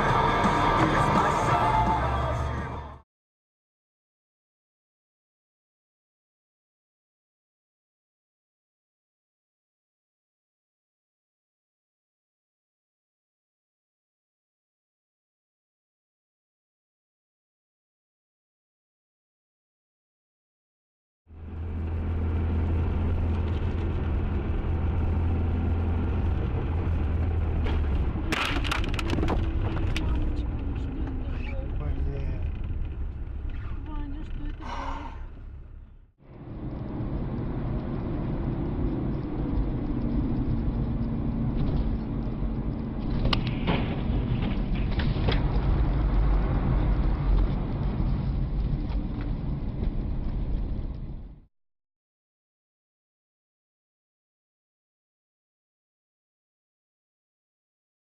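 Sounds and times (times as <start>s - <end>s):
car engine hum: 0.0s - 3.0s, 21.3s - 51.5s
road noise: 0.0s - 3.0s, 21.3s - 51.5s.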